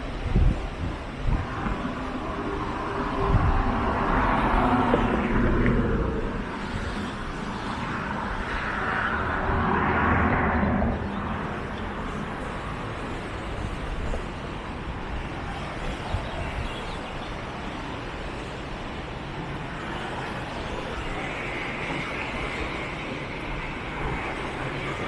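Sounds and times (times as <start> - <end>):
steady traffic hum: 0.0 - 25.0
vehicle passing: 8.7 - 12.2.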